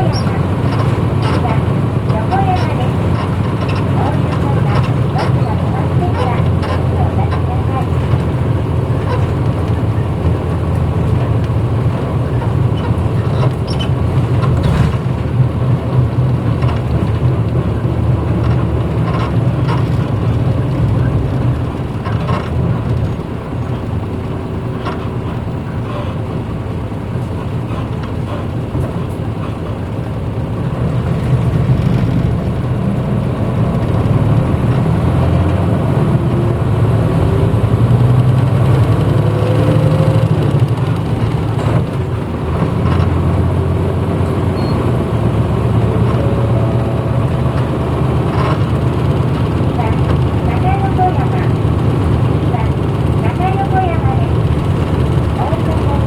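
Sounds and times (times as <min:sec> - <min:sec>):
clicks and rattles: 0:00.0 - 0:25.4, 0:44.2 - 0:53.6
bus diesel engine: 0:00.0 - 0:56.0.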